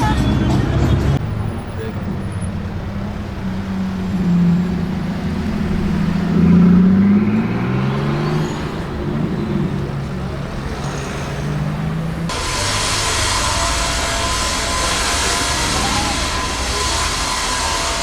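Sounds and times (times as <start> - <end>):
deep car engine pulling away: 0.7 - 12.9.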